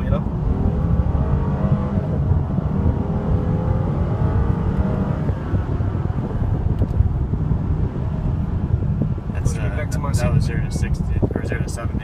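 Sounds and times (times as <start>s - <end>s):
car engine accelerating: 0.0s - 9.9s.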